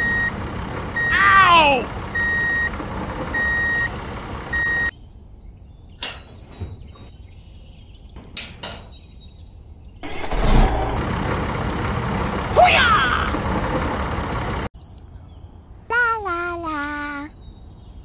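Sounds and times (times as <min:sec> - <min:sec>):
engine noise: 0:00.0 - 0:04.9, 0:10.0 - 0:14.7
vehicle reversing beeps: 0:00.0 - 0:04.9.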